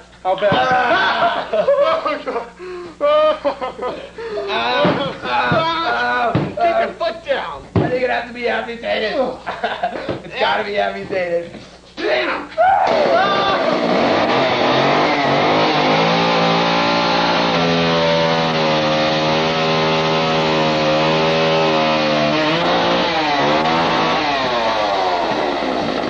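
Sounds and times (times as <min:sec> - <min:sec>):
chainsaw engine revving: 0:12.9 - 0:26.0.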